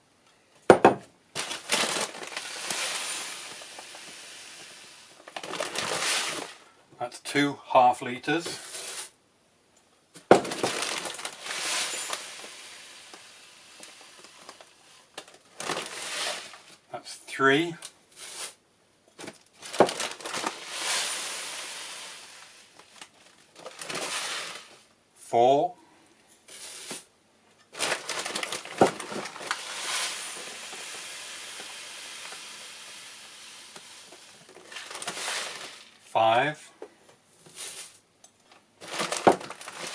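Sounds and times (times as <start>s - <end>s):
cat litter granules pouring: 1.4s - 6.8s, 10.4s - 16.8s, 19.6s - 24.8s, 26.5s - 27.1s, 27.7s - 36.2s, 37.6s - 38.0s, 38.8s - 39.9s.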